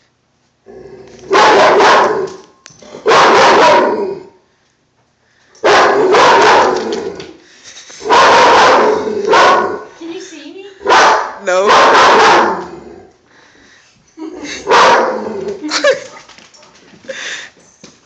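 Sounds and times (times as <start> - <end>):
dog barking: 1.3 - 2.4, 3.0 - 4.0, 5.6 - 6.8, 8.0 - 9.9, 10.8 - 12.7, 14.6 - 15.2.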